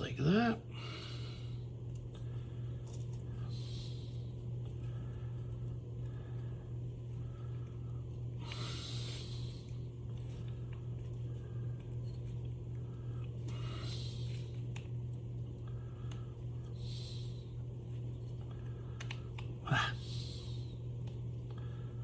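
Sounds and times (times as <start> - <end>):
steady low hum: 0.0 - 22.0
person breathing out: 19.6 - 20.7.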